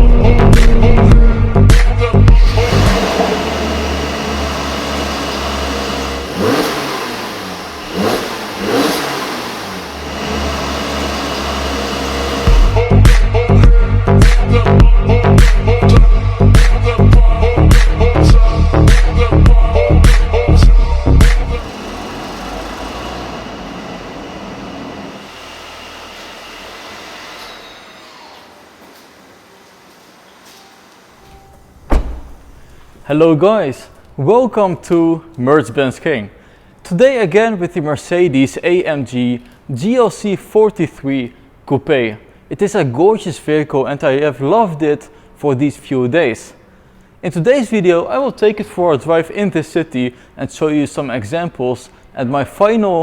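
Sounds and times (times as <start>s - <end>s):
vehicle rumble and road noise: 0.0s - 12.9s, 20.5s - 27.4s, 28.7s - 33.2s
car engine revving: 0.0s - 13.0s, 19.9s - 30.2s.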